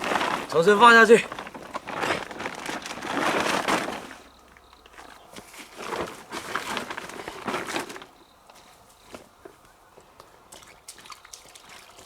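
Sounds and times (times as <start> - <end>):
rustling and scraping handling: 0.0 - 9.6.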